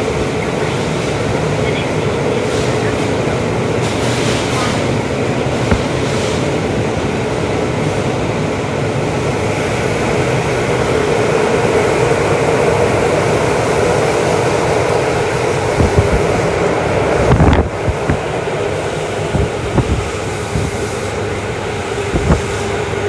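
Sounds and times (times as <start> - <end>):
train wheels rumbling on rail: 0.0 - 23.0
short knocks: 5.6 - 6.2, 15.7 - 16.5, 19.3 - 20.9, 22.1 - 22.7.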